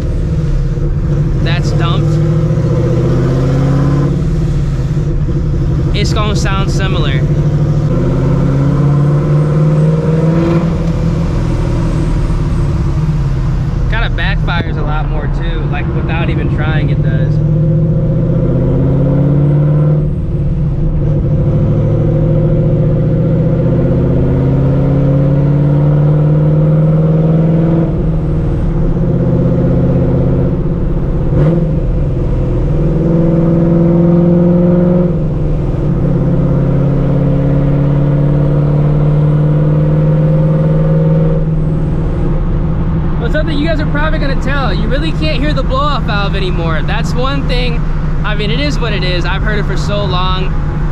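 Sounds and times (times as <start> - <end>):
sharp exhaust crack: 0.0 - 18.8, 40.6 - 50.9
car engine accelerating through gears: 0.0 - 50.9.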